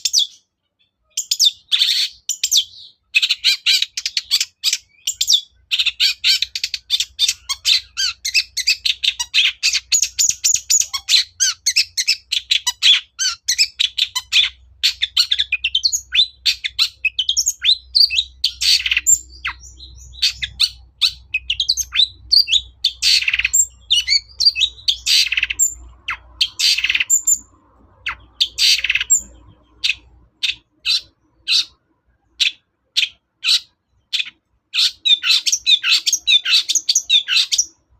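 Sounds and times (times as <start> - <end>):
shrike singing: 3.4 - 31.8.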